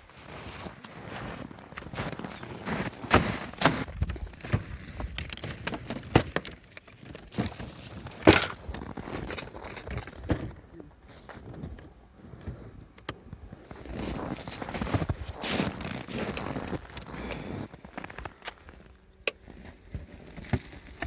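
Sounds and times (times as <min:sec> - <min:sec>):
irregular knocks and crunches: 0:00.1 - 0:21.0.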